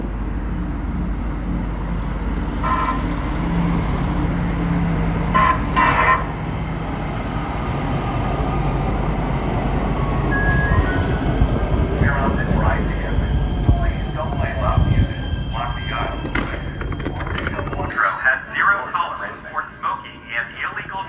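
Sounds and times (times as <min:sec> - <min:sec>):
train horn honking: 0:02.6 - 0:03.4, 0:05.3 - 0:06.6.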